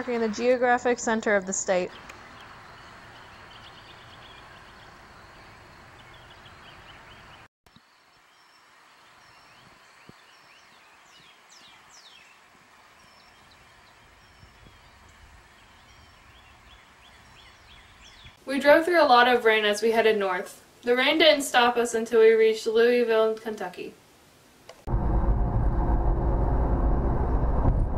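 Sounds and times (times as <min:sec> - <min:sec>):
small birds chirping: 0:00.4 - 0:18.8
steady background hiss: 0:07.8 - 0:24.9.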